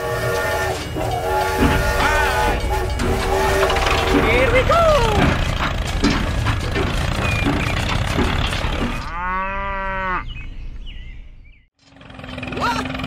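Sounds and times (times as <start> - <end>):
rattling mechanical clicking: 0.0 - 9.2
cow mooing: 8.8 - 10.4.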